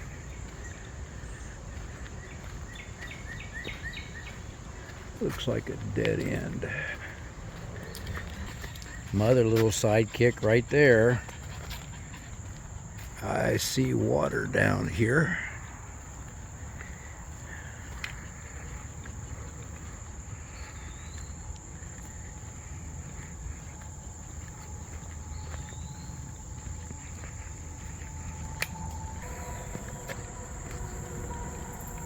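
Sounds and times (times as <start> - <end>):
bird chirps: 0.2 - 4.5, 25.0 - 32.0
high-pitched insect drone: 21.2 - 32.0
distant train horn: 27.3 - 32.0.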